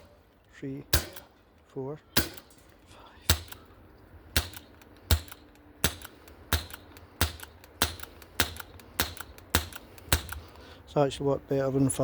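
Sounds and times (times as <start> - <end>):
bb gun shots: 0.9 - 1.3, 2.2 - 2.6, 3.3 - 3.7, 4.3 - 10.4.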